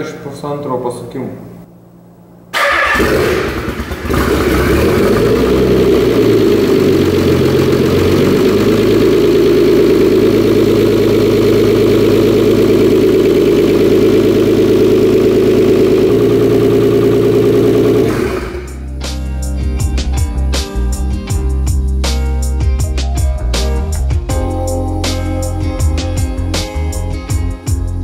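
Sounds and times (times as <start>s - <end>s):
starter motor cranking: 2.6s - 5.5s
car engine idling: 2.6s - 18.9s.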